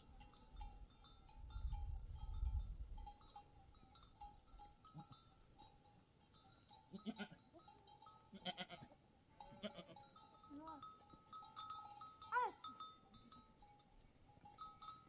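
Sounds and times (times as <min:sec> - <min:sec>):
flock bells tinkling: 0:00.0 - 0:15.0
sheep and goats bleating: 0:06.9 - 0:07.7, 0:08.3 - 0:10.9.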